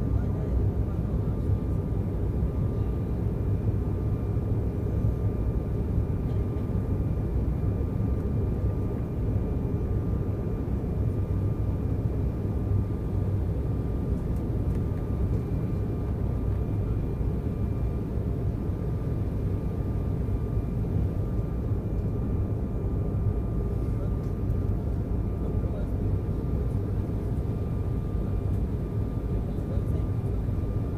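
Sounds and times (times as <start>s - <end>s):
airliner cabin engine roar: 0.0s - 30.9s
faint steady whine: 0.0s - 30.9s.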